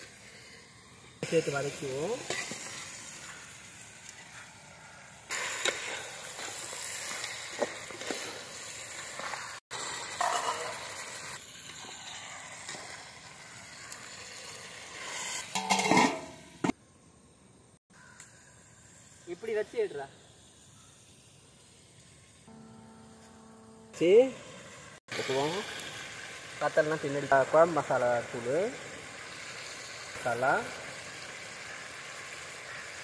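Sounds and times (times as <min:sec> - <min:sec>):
food sizzling in a pot: 0:00.0 - 0:17.0, 0:18.0 - 0:23.3, 0:24.0 - 0:33.0
metal ladle scraping a pot: 0:15.0 - 0:16.4.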